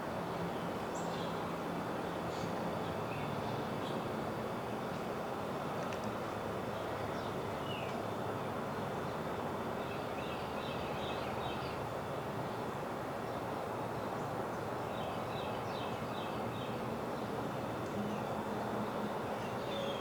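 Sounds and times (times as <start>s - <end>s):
steady background hiss: 0.0s - 20.0s
songbirds chirping: 13.3s - 20.0s.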